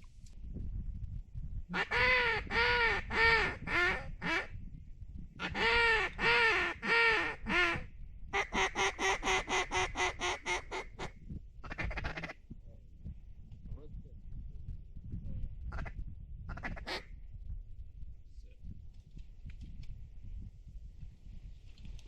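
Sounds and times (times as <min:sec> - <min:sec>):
low wind rumble: 0:00.0 - 0:22.0
duck call quacking: 0:01.7 - 0:04.5, 0:05.4 - 0:07.8, 0:08.4 - 0:12.4, 0:16.5 - 0:17.1.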